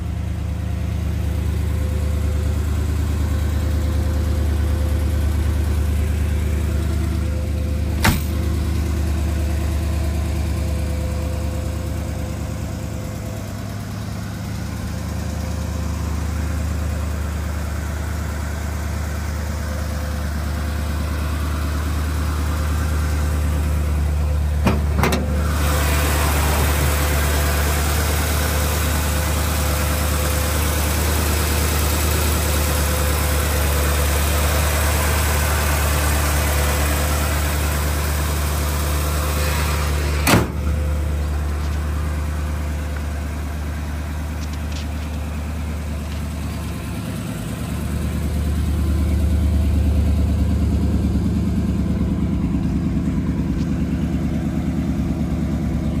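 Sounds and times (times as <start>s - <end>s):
car engine idling: 0.0s - 56.0s
car hood slamming shut: 7.9s - 8.5s, 24.6s - 25.4s, 40.2s - 40.7s.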